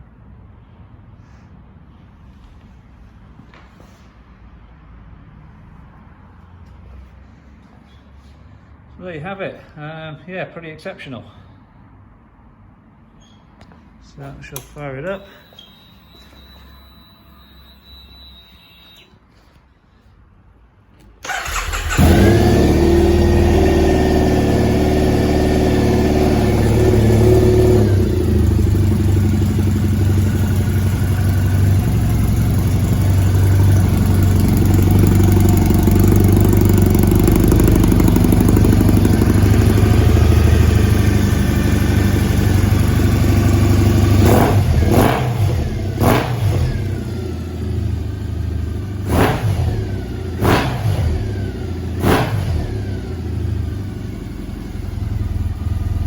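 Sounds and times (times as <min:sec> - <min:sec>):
motorcycle engine revving: 0:21.2 - 0:56.0
motorcycle engine idling: 0:21.3 - 0:56.0.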